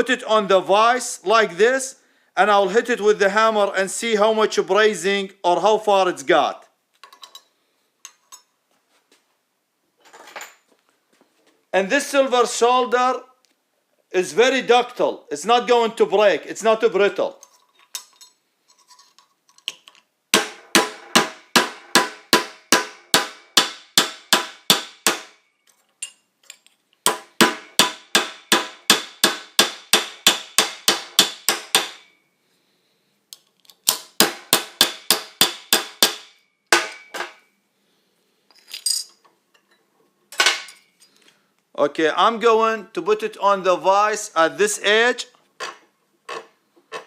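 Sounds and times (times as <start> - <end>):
hammer striking copper tube: 20.3 - 25.4, 27.0 - 32.2, 33.9 - 37.4.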